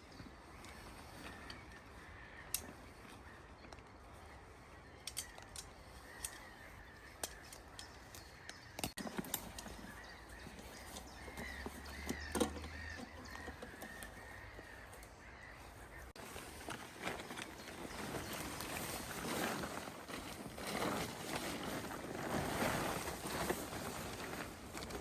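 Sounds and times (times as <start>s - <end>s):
birds calling: 0.0s - 25.0s
sharp clicks and knocks: 10.8s - 14.2s.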